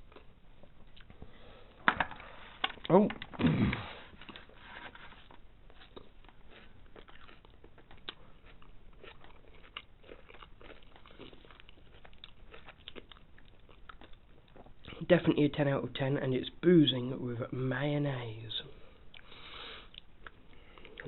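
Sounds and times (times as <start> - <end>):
person chewing crunchy food: 2.2 - 15.1, 19.1 - 21.0.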